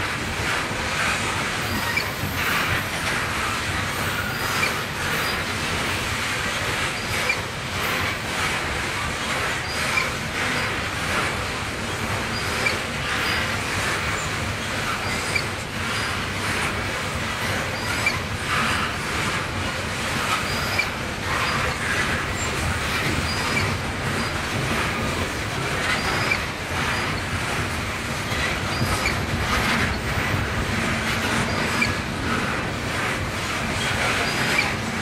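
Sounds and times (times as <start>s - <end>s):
hopper cars rumbling on rails: 0.0s - 35.0s
high wheel squeals: 1.6s - 2.7s, 20.3s - 22.6s, 25.8s - 27.2s.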